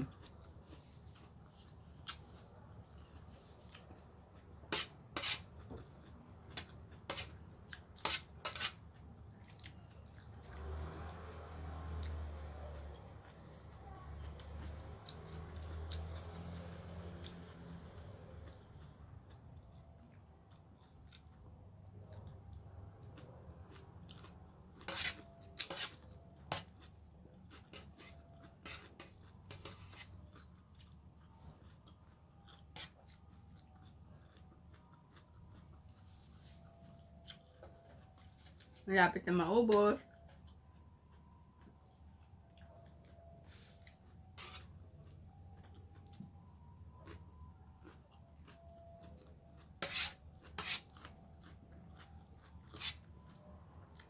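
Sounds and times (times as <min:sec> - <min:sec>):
chewing: 0:00.0 - 0:04.9, 0:05.5 - 0:11.1, 0:11.8 - 0:38.8, 0:39.9 - 0:54.0.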